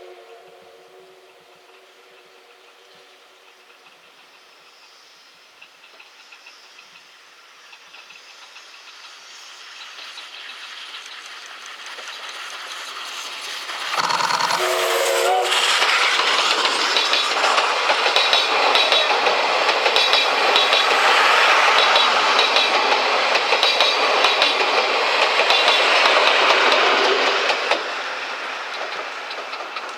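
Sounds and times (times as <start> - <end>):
steam whistle blast: 0.0 - 3.2, 14.0 - 16.3
steam locomotive passing: 0.0 - 29.9
wheels clattering over rail joints: 10.0 - 29.9.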